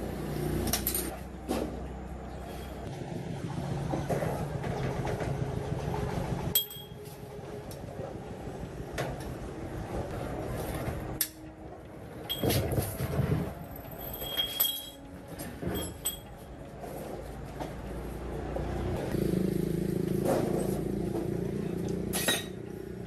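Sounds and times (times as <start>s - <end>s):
rough mechanical rumble: 0.0s - 23.0s
metallic clinks and rings: 6.5s - 7.1s, 12.2s - 12.8s, 13.7s - 16.5s.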